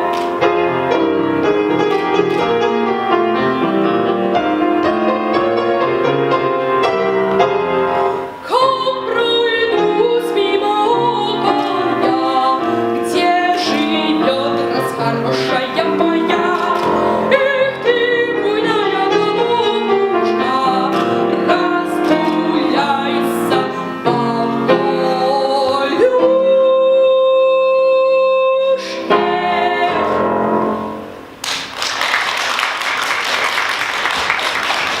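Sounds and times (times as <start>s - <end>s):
piano accompaniment: 0.0s - 35.0s
person singing folk song: 8.4s - 30.4s.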